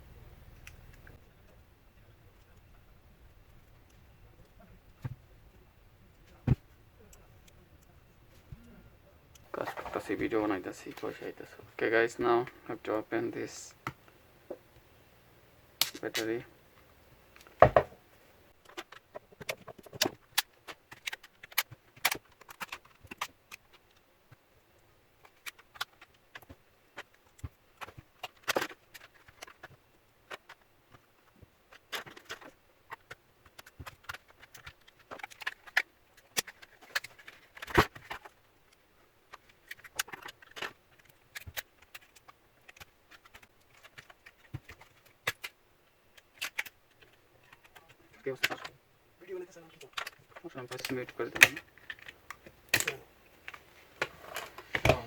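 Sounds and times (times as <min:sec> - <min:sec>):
plastic cracking: 0:18.6 - 0:48.7.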